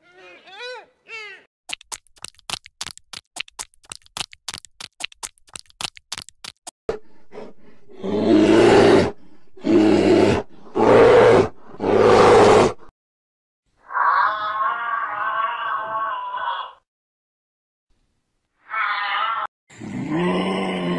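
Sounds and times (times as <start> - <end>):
bear growling: 7.3 - 12.9, 19.7 - 20.9.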